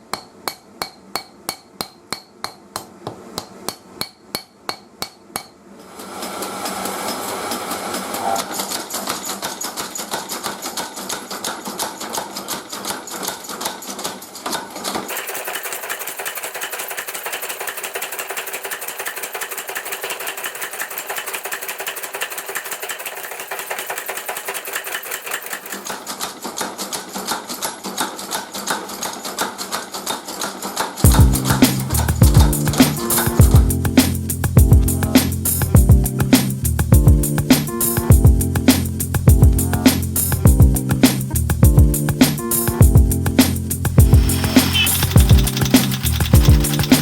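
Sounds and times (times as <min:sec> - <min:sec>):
rapid mechanical strikes on metal: 0:06.6 - 0:36.4, 0:43.4 - 0:47.0.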